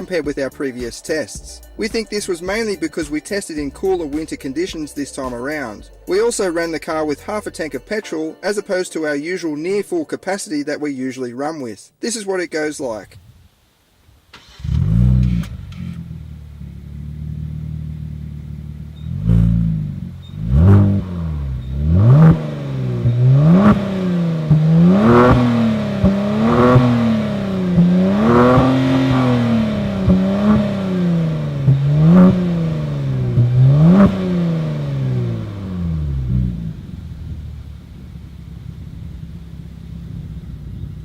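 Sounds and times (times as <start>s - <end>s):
car engine idling and revving: 14.4s - 41.0s.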